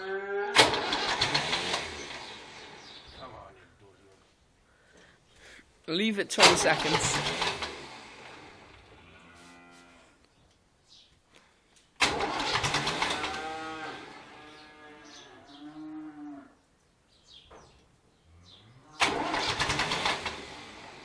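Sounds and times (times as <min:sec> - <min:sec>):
tractor starter motor cranking: 0:00.6 - 0:03.0, 0:06.4 - 0:09.0, 0:12.0 - 0:14.3, 0:19.0 - 0:21.0.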